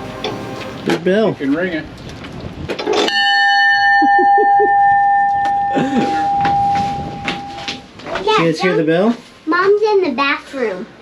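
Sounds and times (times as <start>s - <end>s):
big bell ringing: 3.1s - 7.8s.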